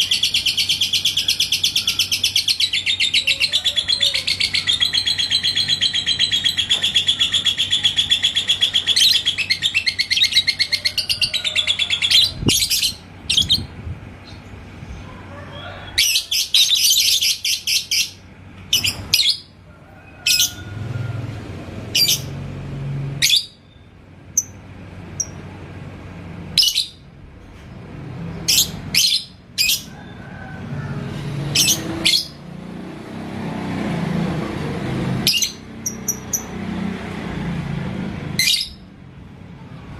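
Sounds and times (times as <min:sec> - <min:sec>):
high bird chirps: 0:00.0 - 0:14.5.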